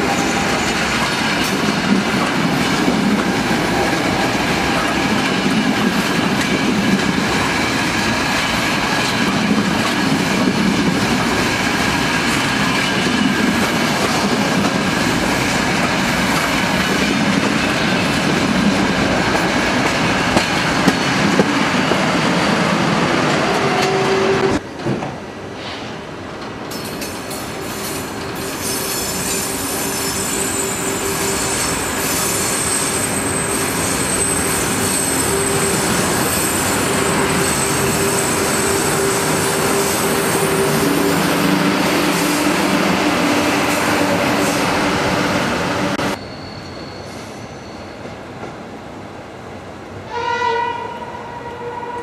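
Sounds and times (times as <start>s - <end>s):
train wheels rumbling on rail: 0.0s - 50.2s
high-pitched wheel squeal: 28.6s - 41.1s, 46.1s - 48.0s.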